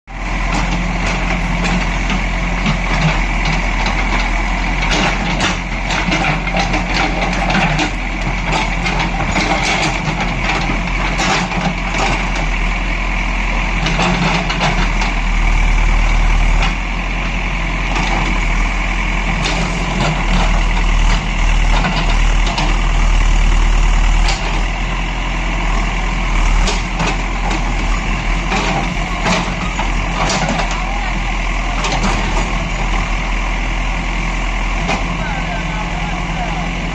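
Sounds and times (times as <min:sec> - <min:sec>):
diesel engine running: 0:00.1 - 0:36.9
sharp knocks and clanks: 0:00.6 - 0:12.3, 0:28.5 - 0:30.8.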